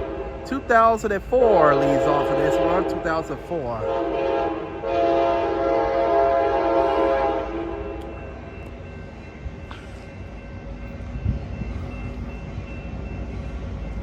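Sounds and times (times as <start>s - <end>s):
train air horn chord: 1.6s - 8.0s.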